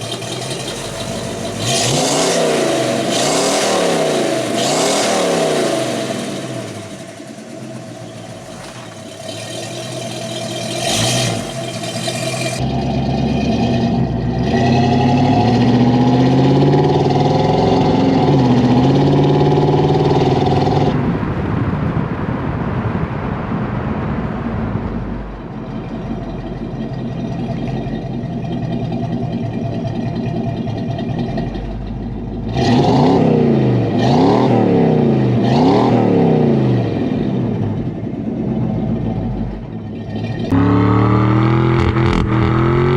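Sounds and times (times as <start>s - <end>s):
car engine revving: 0.0s - 21.0s, 23.8s - 42.9s.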